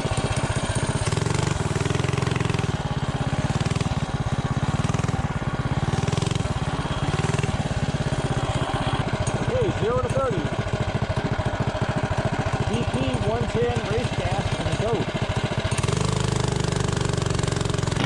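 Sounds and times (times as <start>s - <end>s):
single-cylinder engine idling: 0.0s - 18.0s.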